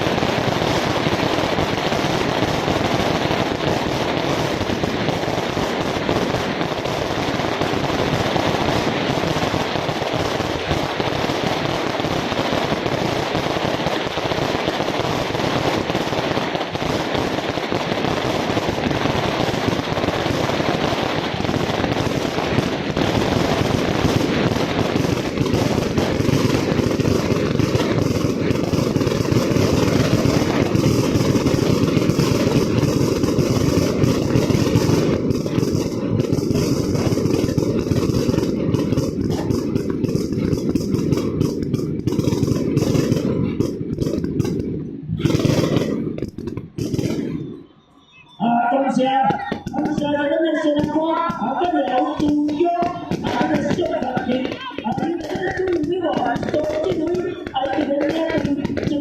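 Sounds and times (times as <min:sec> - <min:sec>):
fireworks and firecrackers popping: 0:00.0 - 0:59.0.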